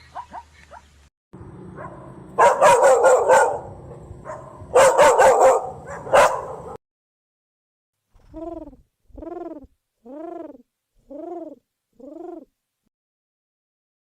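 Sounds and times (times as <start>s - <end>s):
dog barking: 0.1s - 0.9s, 1.8s - 6.8s.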